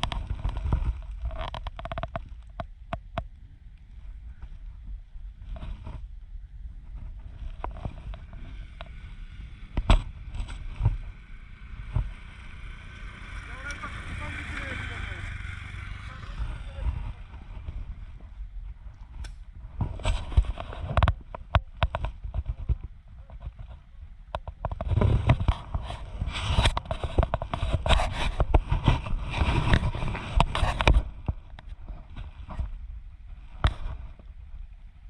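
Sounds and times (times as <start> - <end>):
wind buffeting a microphone: 0.0 - 35.0.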